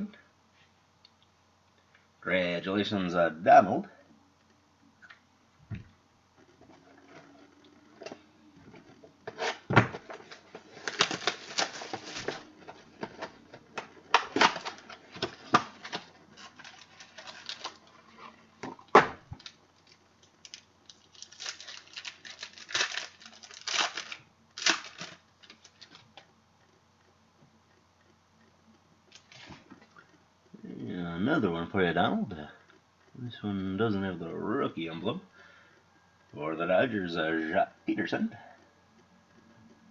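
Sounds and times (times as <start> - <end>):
card packs crinkling and tearing: 9.3 - 18.0, 18.7 - 26.1.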